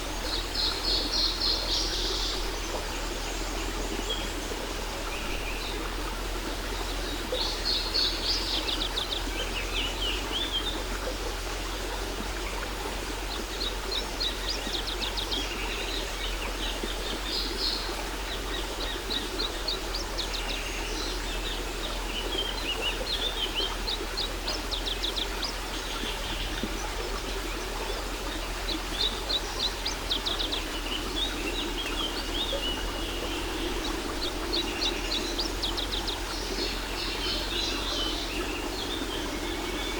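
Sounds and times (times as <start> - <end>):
songbirds chirping: 0.0 - 39.9
waterfall rushing: 30.3 - 39.9.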